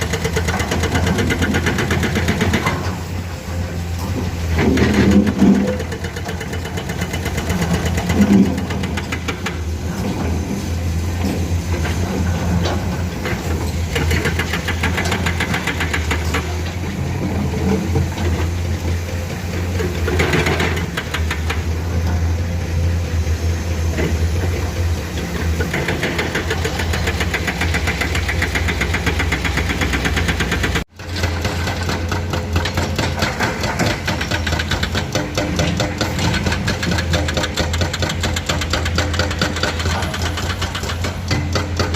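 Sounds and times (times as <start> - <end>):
excavator diesel engines running: 0.0 - 41.9
knocks and clanks: 25.3 - 41.9.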